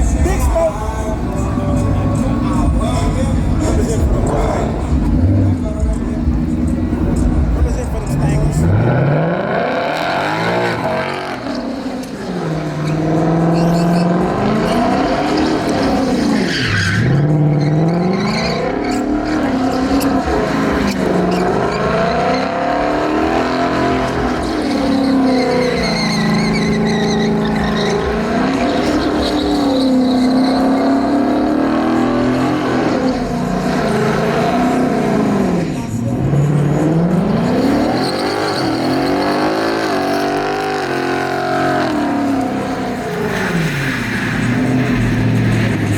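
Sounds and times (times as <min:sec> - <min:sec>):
truck engine revving: 0:00.0 - 0:45.9
tyres squealing: 0:09.6 - 0:45.9.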